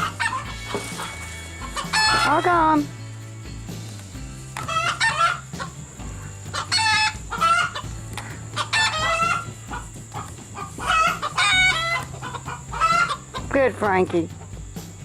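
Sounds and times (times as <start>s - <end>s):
chickens clucking and squawking: 0.0s - 3.0s, 4.6s - 13.6s.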